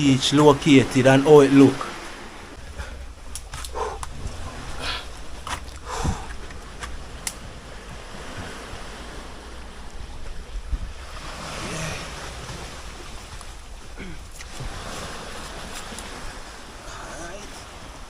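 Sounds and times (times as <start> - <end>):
surf washing on rocks: 0.0 - 18.0
wind on microphone: 1.8 - 18.0.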